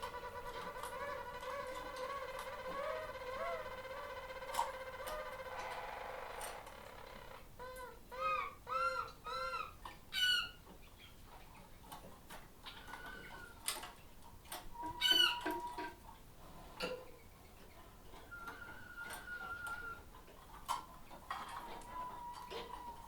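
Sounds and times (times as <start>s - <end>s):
small birds chirping: 0.0s - 11.7s
ticks of birds in cages: 0.0s - 23.0s.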